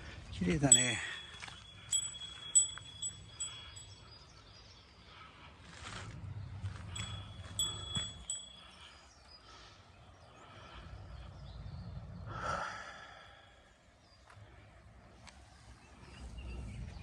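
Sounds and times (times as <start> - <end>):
small metal bell ringing: 0.6 - 4.1, 6.8 - 9.0.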